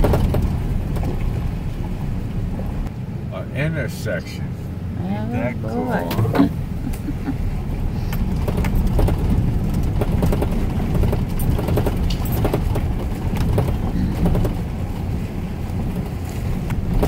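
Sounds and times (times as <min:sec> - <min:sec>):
knocks and rattles from bumps: 0:00.0 - 0:01.5, 0:08.1 - 0:15.2
vehicle rumbling on dirt road: 0:00.0 - 0:17.0.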